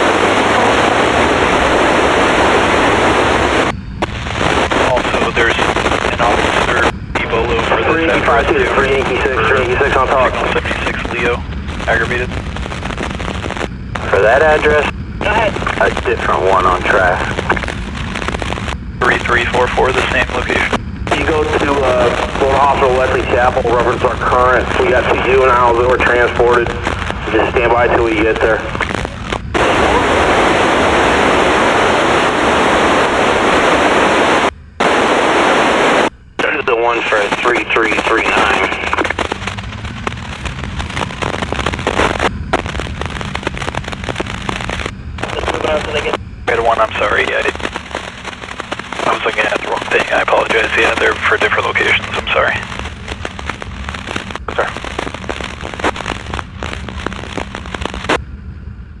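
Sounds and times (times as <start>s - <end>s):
police scanner radio static: 0.0s - 58.2s
steady low hum: 0.0s - 59.0s
dispatch voice on radio: 4.7s - 12.4s, 14.0s - 17.6s, 19.0s - 29.0s, 36.4s - 39.2s, 45.2s - 47.6s, 49.0s - 52.7s, 54.5s - 54.9s.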